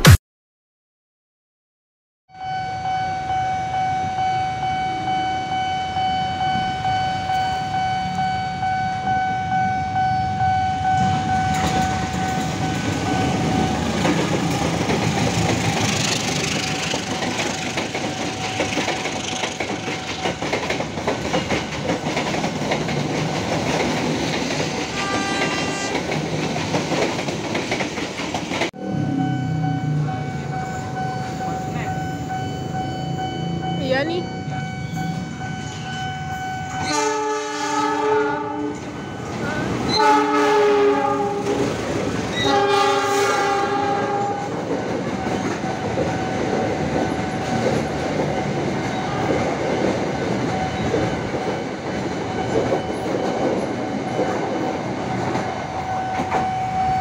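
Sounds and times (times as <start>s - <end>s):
train wheels clattering over rail joints: 11.0s - 28.7s
long train horn: 24.8s - 26.1s, 36.8s - 38.9s, 39.9s - 41.7s, 42.3s - 44.6s, 49.0s - 49.4s
short train horn: 24.9s - 26.0s, 36.8s - 38.9s, 39.9s - 41.6s, 42.4s - 44.5s.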